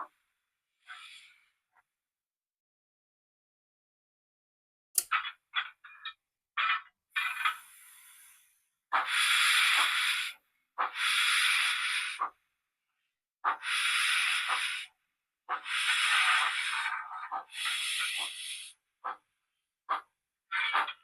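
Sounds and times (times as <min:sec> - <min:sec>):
steam hiss bursts: 0:09.1 - 0:12.3, 0:13.6 - 0:14.9, 0:15.6 - 0:16.9, 0:17.5 - 0:18.7.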